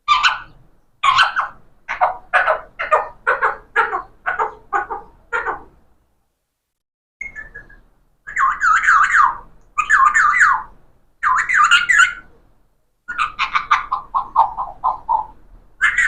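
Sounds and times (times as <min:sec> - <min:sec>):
parrot calling: 0:00.0 - 0:05.7, 0:07.2 - 0:12.3, 0:13.1 - 0:16.0.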